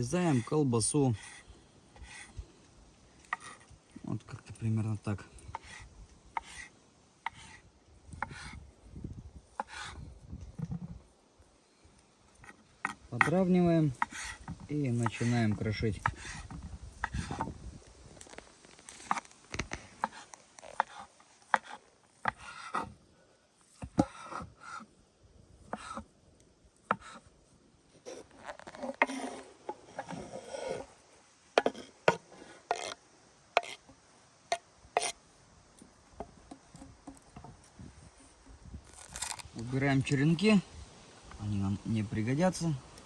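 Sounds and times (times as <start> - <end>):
knife scraping board: 3.3 - 3.7, 6.4 - 6.7, 8.2 - 8.6, 9.6 - 10.0, 20.0 - 22.9, 25.7 - 26.0, 28.1 - 30.9, 31.6 - 33.0, 33.6 - 33.8, 35.0 - 35.2, 38.9 - 39.5.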